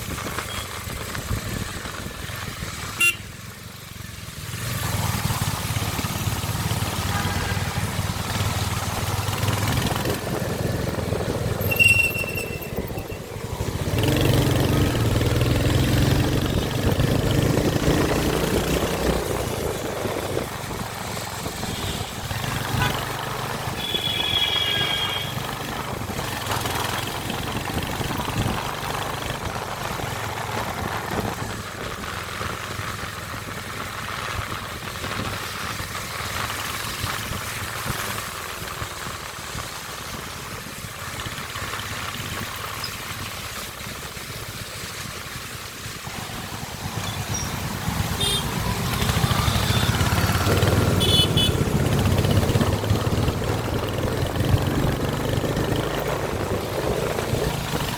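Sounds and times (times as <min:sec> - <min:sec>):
motorcycle engine running: 0:00.0 - 0:57.9
horn beep: 0:03.0 - 0:03.3, 0:11.6 - 0:13.4, 0:48.2 - 0:50.2, 0:50.9 - 0:51.6.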